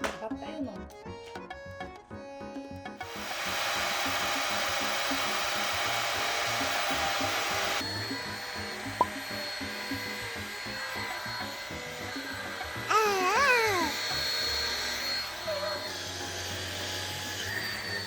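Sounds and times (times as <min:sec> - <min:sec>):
background music: 0:00.0 - 0:03.2, 0:07.8 - 0:15.3
robot vacuum suction noise: 0:03.1 - 0:18.0.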